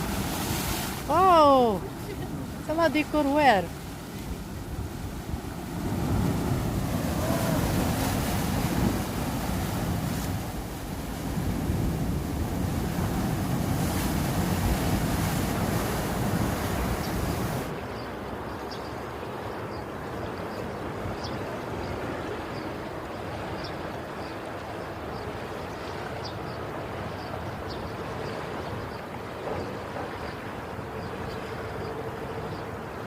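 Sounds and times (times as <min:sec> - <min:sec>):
sea surf washing: 0:00.0 - 0:18.4
wind buffeting microphone: 0:03.6 - 0:17.7.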